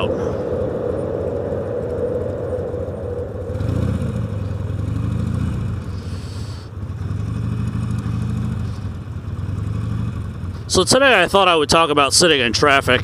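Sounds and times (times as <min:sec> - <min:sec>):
motorcycle engine under throttle: 0:02.7 - 0:11.0.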